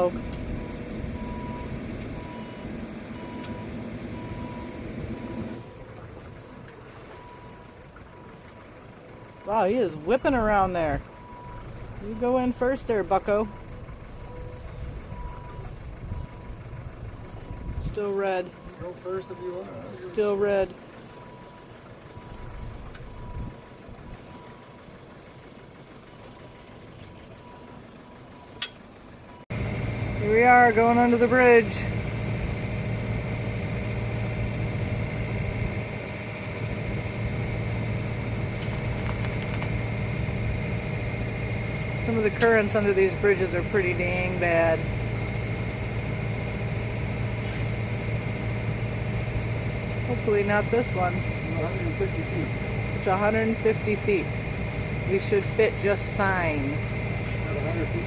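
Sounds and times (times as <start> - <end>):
electronic warning beeps: 0.0 - 5.7, 9.2 - 25.2
low engine hum: 0.0 - 58.0.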